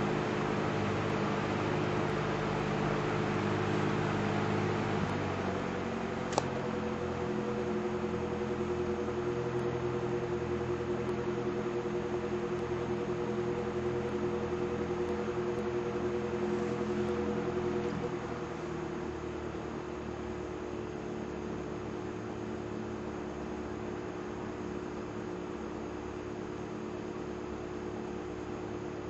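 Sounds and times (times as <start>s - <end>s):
electric fan humming: 0.0s - 29.0s
sharp click: 6.3s - 6.6s.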